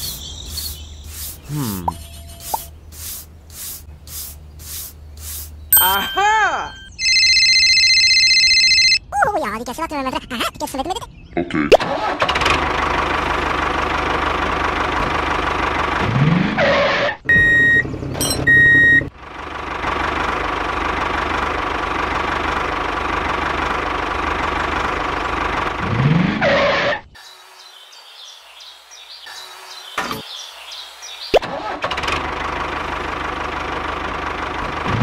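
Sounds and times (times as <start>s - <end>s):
tractor engine running: 11.9s - 26.2s, 31.4s - 35.0s.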